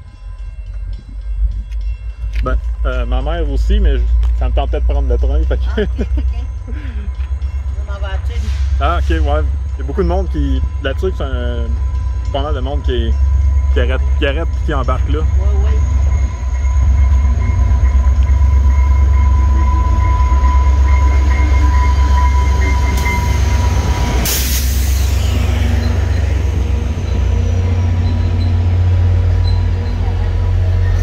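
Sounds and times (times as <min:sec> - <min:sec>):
diesel locomotive rumbling past: 0:00.0 - 0:31.0
passenger cars rolling on rails: 0:00.0 - 0:31.0
loud hiss: 0:24.2 - 0:25.7.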